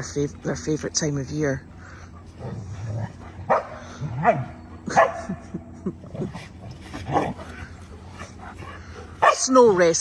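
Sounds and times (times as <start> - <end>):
dogs yelping: 3.2 - 5.4, 6.9 - 9.5
dogs barking: 3.2 - 5.5, 7.0 - 9.6.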